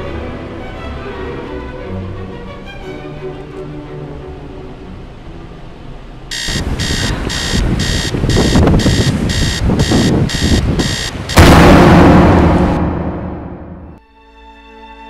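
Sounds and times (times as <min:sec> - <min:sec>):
electronic alarm beeping: 0:06.3 - 0:11.5
low rumble: 0:09.1 - 0:14.0
loud crash: 0:11.3 - 0:14.0.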